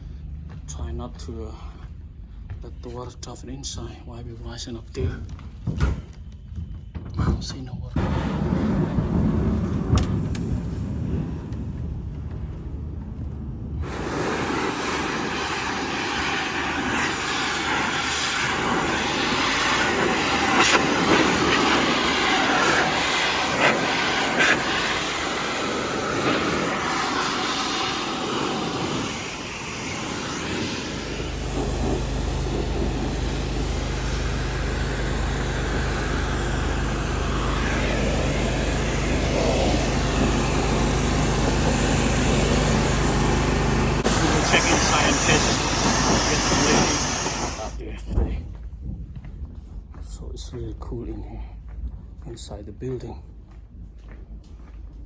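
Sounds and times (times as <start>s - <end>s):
low motor hum: 0.0s - 7.1s, 7.9s - 50.6s
pressure washer spraying: 13.8s - 47.8s.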